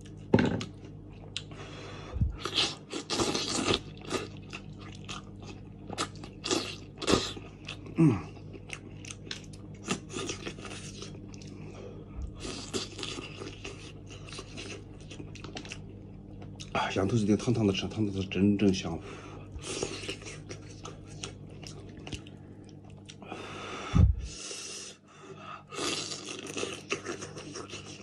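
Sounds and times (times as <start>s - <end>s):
steady low hum: 0.0s - 28.0s
chewing and crunching: 2.2s - 16.8s, 19.5s - 23.3s, 25.8s - 28.0s.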